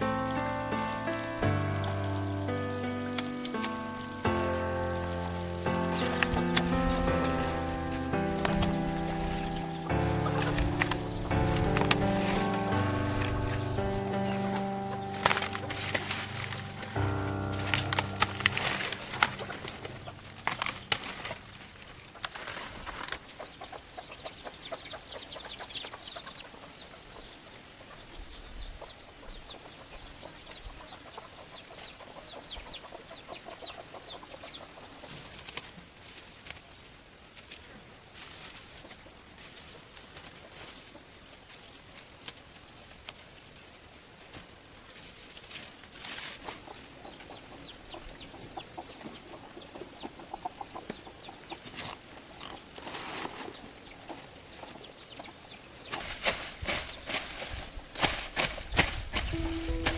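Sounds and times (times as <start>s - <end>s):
chickens clucking: 0.0s - 28.0s, 46.4s - 57.1s.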